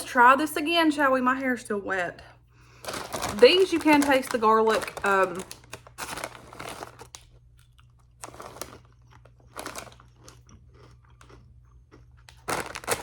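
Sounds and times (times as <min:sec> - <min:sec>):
low steady hum: 0:00.0 - 0:13.0
person chewing crunchy chips: 0:02.7 - 0:13.0.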